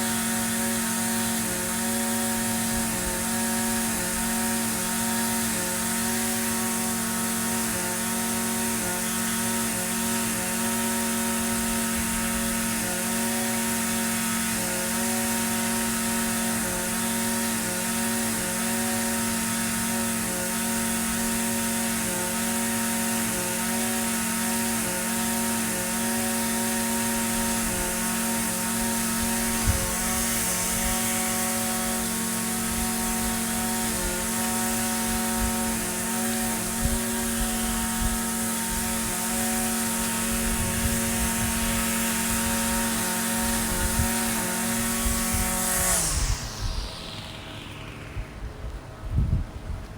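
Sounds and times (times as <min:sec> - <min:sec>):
string trimmer engine running: 0:00.0 - 0:49.9.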